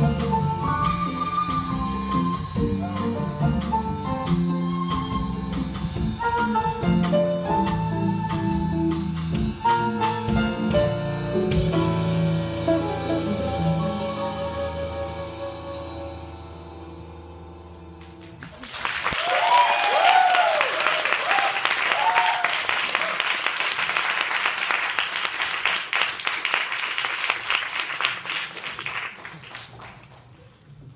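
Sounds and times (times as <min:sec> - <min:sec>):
jazz-pop band playing: 0:00.0 - 0:18.6
audience applauding: 0:18.0 - 0:30.5.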